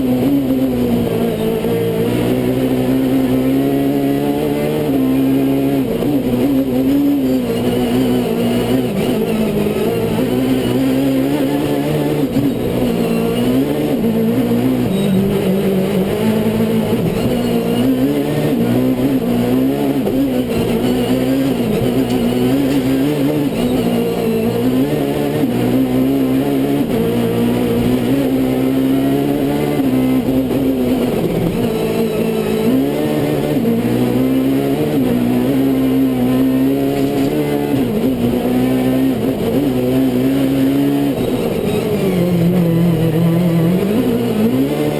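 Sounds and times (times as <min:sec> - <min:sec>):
car engine revving: 0:00.0 - 0:44.9.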